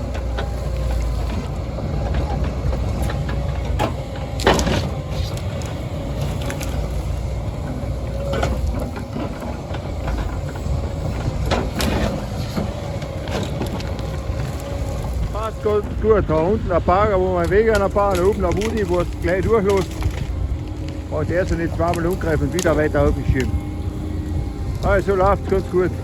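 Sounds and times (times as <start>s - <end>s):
heavy diesel machinery running: 0.0s - 26.0s
sharp cracks and snaps: 17.4s - 23.5s.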